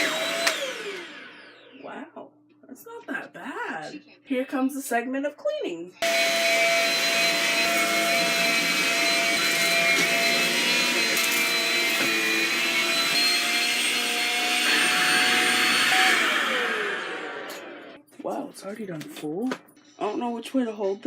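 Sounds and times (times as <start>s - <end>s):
stick vacuum motor whine: 0.0s - 1.9s, 6.0s - 18.0s
clicks: 0.4s - 0.6s.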